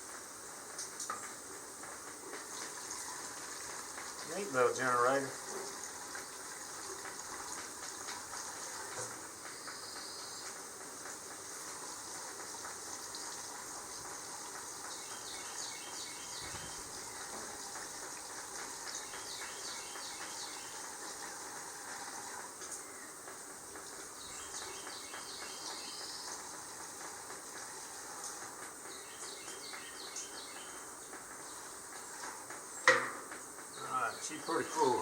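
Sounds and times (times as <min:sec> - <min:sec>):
fuel pouring into a tank: 0:00.0 - 0:35.0
bird chirping: 0:09.4 - 0:10.6, 0:14.8 - 0:17.3, 0:18.8 - 0:20.9, 0:24.1 - 0:26.4, 0:28.9 - 0:31.8, 0:33.7 - 0:35.0.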